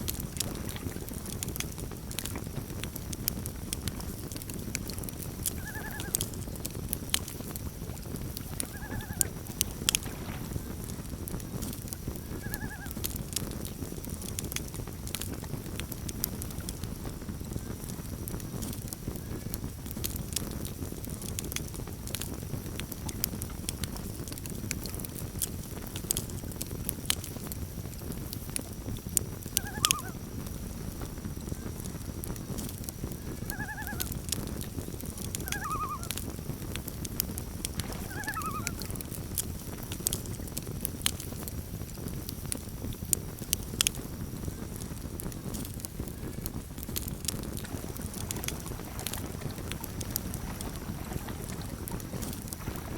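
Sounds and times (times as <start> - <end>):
campfire crackling: 0.0 - 52.9
loon calls: 5.6 - 6.2, 8.5 - 9.4, 12.4 - 13.0, 29.6 - 30.2, 33.5 - 34.1, 35.4 - 36.2, 37.9 - 39.0.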